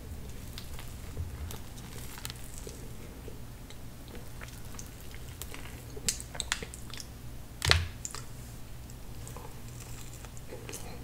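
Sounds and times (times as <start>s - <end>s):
chewing with wet mouth clicks: 0.2s - 7.2s, 8.0s - 11.0s.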